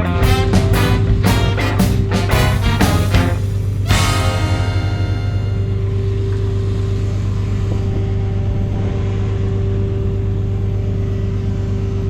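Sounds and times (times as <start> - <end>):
music: 0.0 - 6.4.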